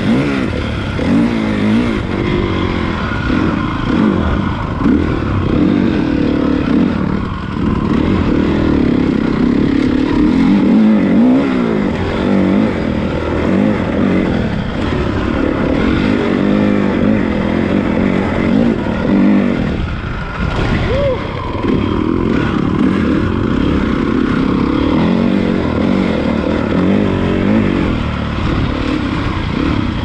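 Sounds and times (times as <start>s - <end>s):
motocross bike engine revving: 0.0s - 30.0s.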